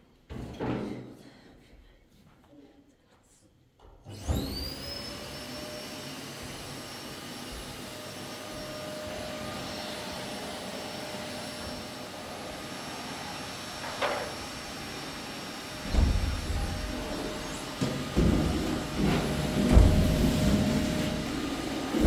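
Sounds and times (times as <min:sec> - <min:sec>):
vacuum cleaner running: 0:04.0 - 0:22.0.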